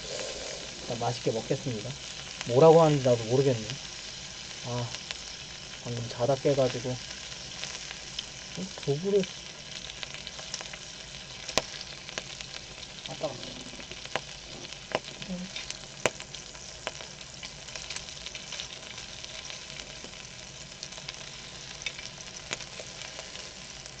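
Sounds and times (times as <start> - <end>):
pork sizzling in fat: 0.0 - 24.0
fat popping: 13.0 - 16.4.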